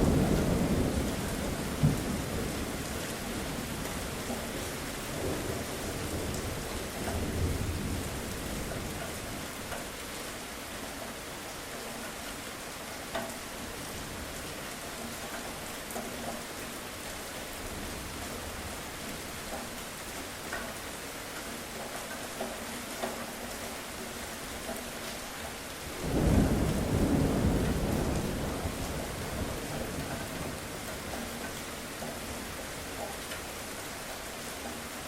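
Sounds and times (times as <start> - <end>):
steady rain falling: 0.0 - 35.0
thunder rumbling: 26.0 - 30.9.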